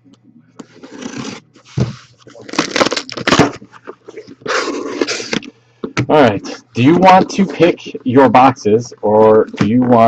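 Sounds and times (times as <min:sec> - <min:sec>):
cardboard packaging rustling: 0:00.6 - 0:05.5.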